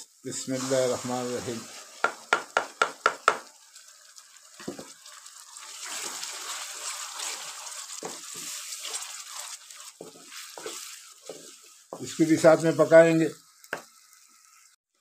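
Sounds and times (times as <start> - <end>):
paste sizzling in hot fat: 0.0 - 14.8
spatula scraping and knocking pan: 4.6 - 5.0, 5.8 - 12.2.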